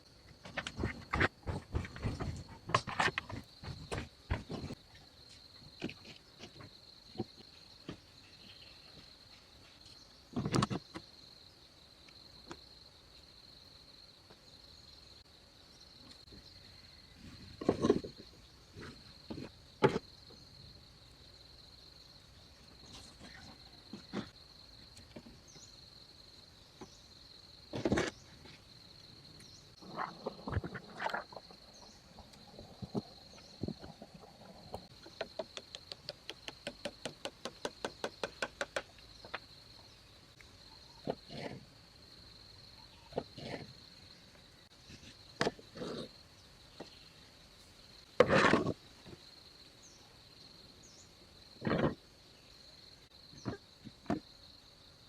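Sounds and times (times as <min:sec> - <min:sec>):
crickets trilling: 0:00.0 - 0:55.0
knocks and thumps: 0:00.4 - 0:04.8, 0:32.7 - 0:39.5.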